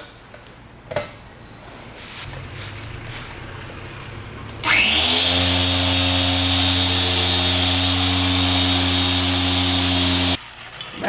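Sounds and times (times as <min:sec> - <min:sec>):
polisher whining: 0:04.6 - 0:10.4.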